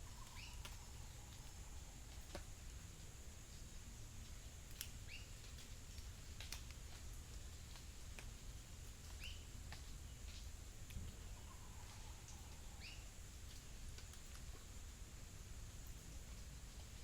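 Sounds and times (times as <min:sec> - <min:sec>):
bird chirping: 0:00.0 - 0:01.5, 0:09.2 - 0:09.5
small scattered clicks: 0:04.7 - 0:07.1.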